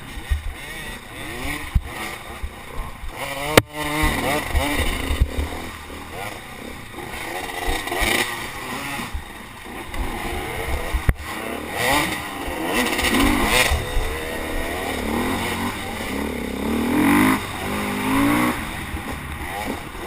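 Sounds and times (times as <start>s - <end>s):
racing motorcycle engine revving: 0.0s - 20.0s.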